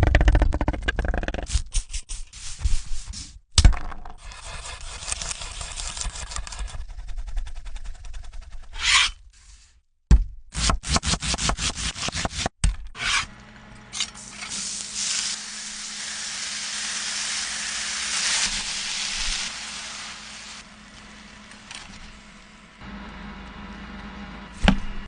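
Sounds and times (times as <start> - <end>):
food sizzling: 14.2 - 22.4.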